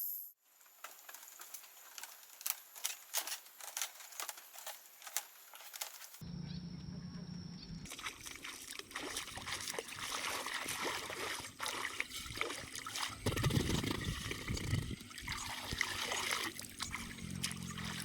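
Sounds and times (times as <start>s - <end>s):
small water splashes: 7.8s - 18.0s
water trickling and sloshing: 7.8s - 18.0s.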